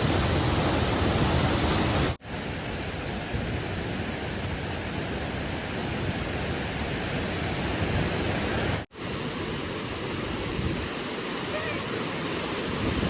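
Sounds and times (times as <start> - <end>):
stream water flowing: 0.0 - 13.0.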